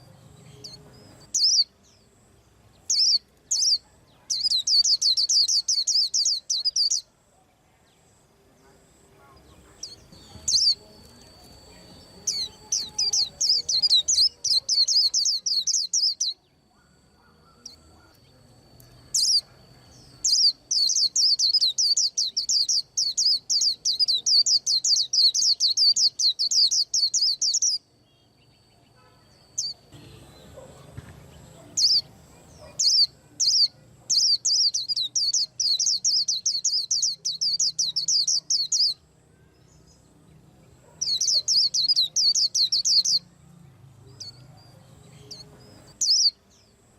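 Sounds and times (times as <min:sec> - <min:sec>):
bird chirping rapidly: 0:00.6 - 0:02.0, 0:02.8 - 0:07.1, 0:09.8 - 0:18.4, 0:19.1 - 0:27.9, 0:31.6 - 0:39.1, 0:40.8 - 0:43.3, 0:45.3 - 0:46.4.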